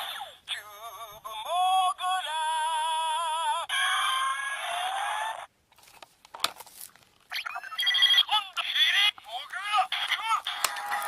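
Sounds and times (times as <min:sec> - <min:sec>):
toy electronic sound effect: 0:07.3 - 0:11.0.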